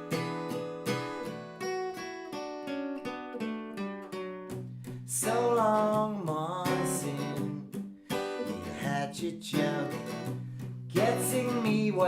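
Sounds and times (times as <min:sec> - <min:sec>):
acoustic guitar playing: 0:00.0 - 0:12.0
person singing: 0:05.1 - 0:07.7, 0:08.5 - 0:12.0.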